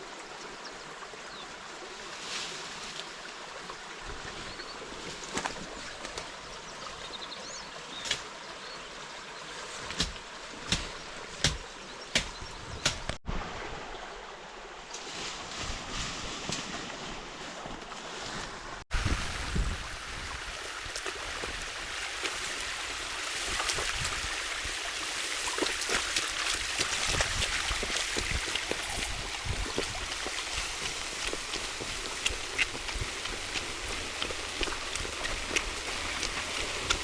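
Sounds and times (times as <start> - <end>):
water rushing: 13.2 - 15.5, 16.9 - 37.0
small clicks splashes and knocks: 25.4 - 37.0.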